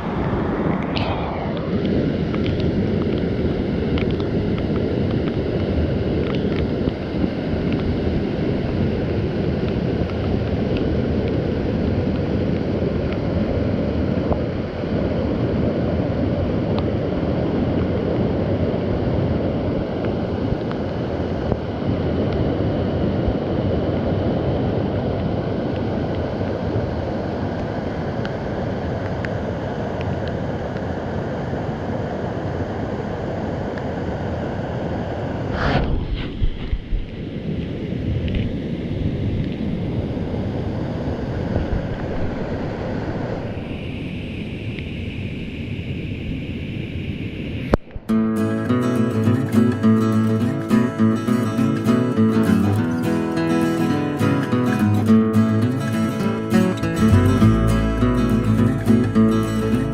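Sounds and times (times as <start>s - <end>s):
waterfall rushing: 48.3s - 59.9s.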